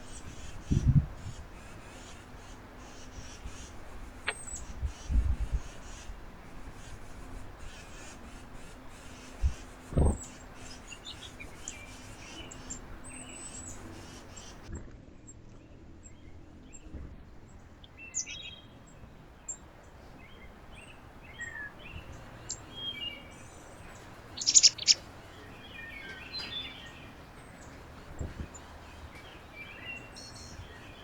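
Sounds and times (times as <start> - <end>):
low background rumble: 0.0 - 14.7
small birds chirping: 0.0 - 14.7, 15.7 - 31.0.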